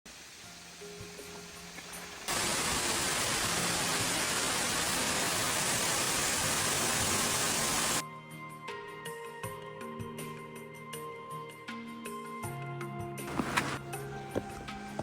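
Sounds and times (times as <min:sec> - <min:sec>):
waterfall rushing: 0:00.6 - 0:08.0.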